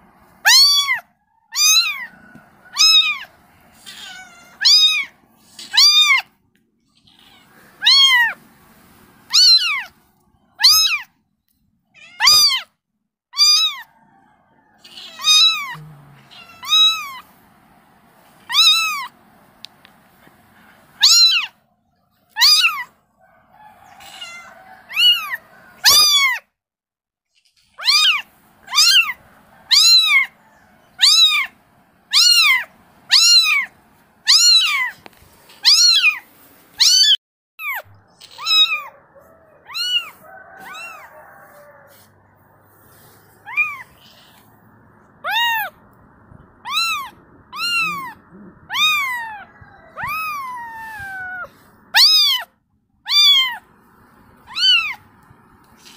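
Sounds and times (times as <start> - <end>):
kitten meowing: 0.4 - 2.1, 2.8 - 6.3, 7.0 - 8.4, 9.3 - 10.0, 10.6 - 11.1, 12.0 - 12.7, 13.4 - 13.9, 14.8 - 17.2, 18.5 - 19.1, 21.0 - 21.5, 22.3 - 22.9, 24.0 - 26.4, 27.8 - 30.3, 31.0 - 35.0, 35.6 - 36.2, 36.8 - 38.9, 39.6 - 41.1, 43.4 - 44.5, 45.2 - 45.8, 46.6 - 52.5, 53.1 - 53.6, 54.4 - 55.0.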